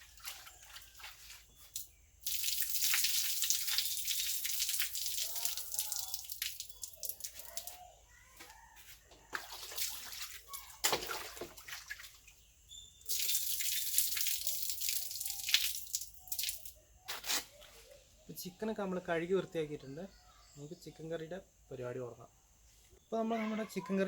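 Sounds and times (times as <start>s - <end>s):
water splashing: 0.0s - 7.8s, 9.4s - 12.4s, 13.0s - 16.7s.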